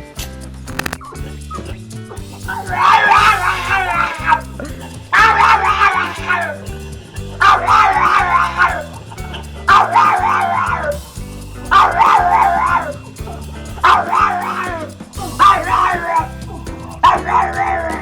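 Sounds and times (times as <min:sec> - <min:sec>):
background music low chords: 0:00.0 - 0:18.0
dog howling high-pitched: 0:02.6 - 0:04.4, 0:05.2 - 0:06.6, 0:07.4 - 0:09.0, 0:09.7 - 0:11.0, 0:11.8 - 0:13.0, 0:13.8 - 0:16.4.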